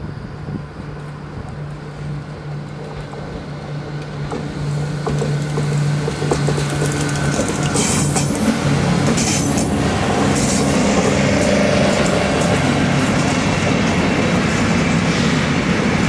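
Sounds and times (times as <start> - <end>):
locomotive low hum: 0.0 - 16.0
train wheels clicking on track: 0.8 - 16.0.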